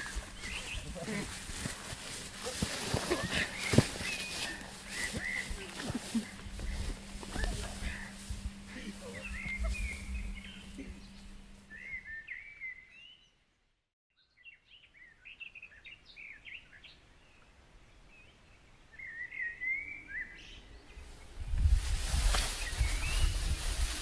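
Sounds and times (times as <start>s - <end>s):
small birds chirping: 0.0s - 13.4s, 22.2s - 24.0s.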